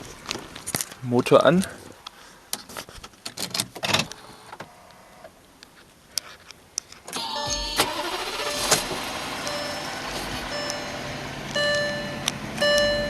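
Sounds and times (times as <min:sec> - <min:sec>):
diesel engine starting and idling: 0:07.1 - 0:13.0
short electronic beep: 0:07.2 - 0:13.0.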